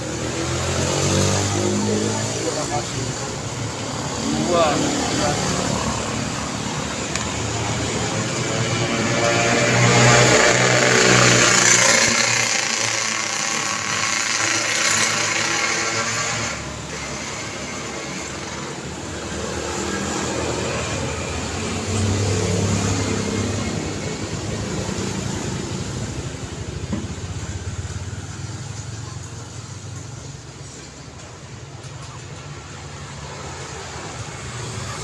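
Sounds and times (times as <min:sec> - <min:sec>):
car engines passing: 0:00.0 - 0:35.0.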